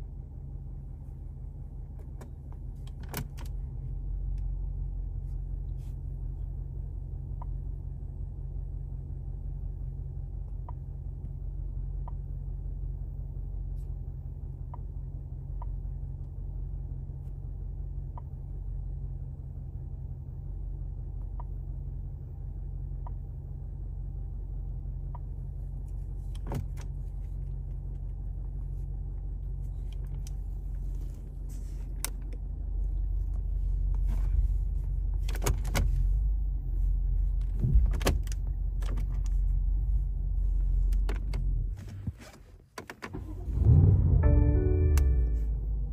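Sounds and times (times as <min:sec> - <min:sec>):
car engine idling: 0:43.1 - 0:45.9.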